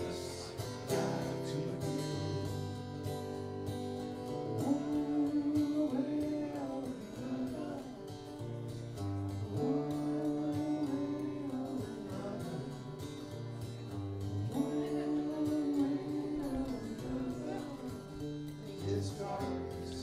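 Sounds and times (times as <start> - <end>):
man singing long held notes: 0.0 - 8.5, 9.3 - 13.6, 14.3 - 20.0
strummed acoustic guitar: 0.0 - 20.0.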